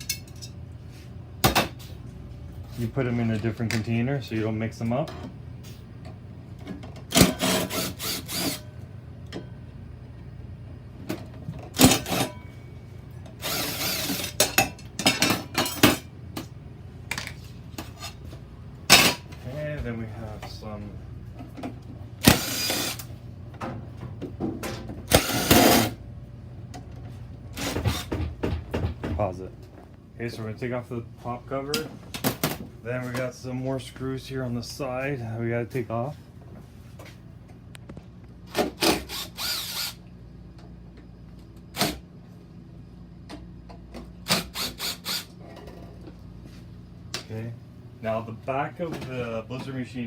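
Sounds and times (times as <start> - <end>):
impact driver running: 7.1 - 8.6, 13.4 - 14.2, 22.2 - 23.0, 25.1 - 26.0, 38.6 - 40.0.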